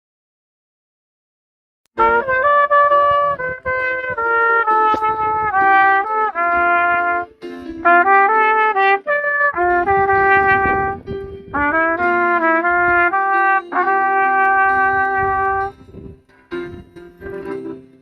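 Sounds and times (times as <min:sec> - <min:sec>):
trumpet melody: 0:02.0 - 0:16.0.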